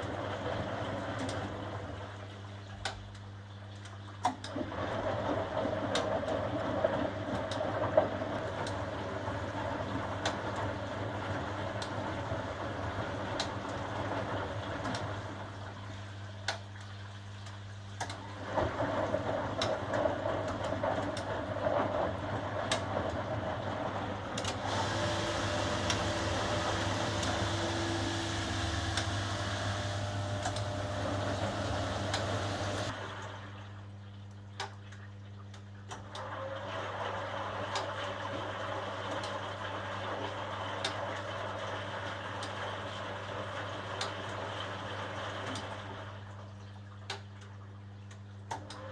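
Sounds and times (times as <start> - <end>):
washing machine motor hum: 4.5 - 16.0, 18.0 - 33.2
washing machine clicks: 24.2 - 32.9.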